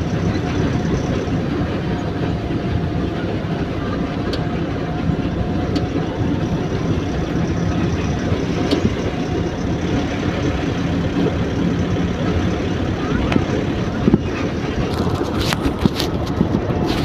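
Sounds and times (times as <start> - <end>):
truck engine and road noise: 0.0 - 17.0.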